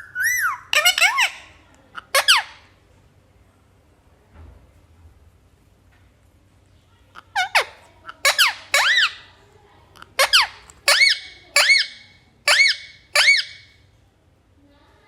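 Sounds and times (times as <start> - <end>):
parrot whistled squeaks: 0.0 - 1.4, 10.2 - 13.7.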